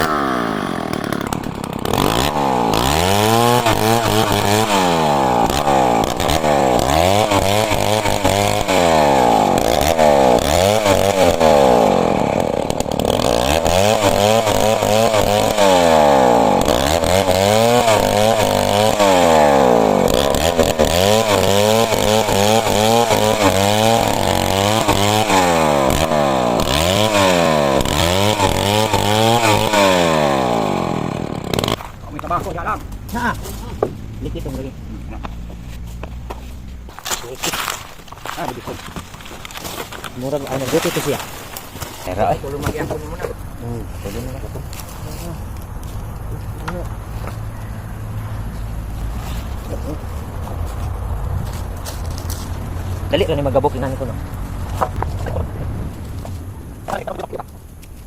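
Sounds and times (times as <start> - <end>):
chainsaw revving cutting wood: 0.0 - 32.1, 37.4 - 43.0.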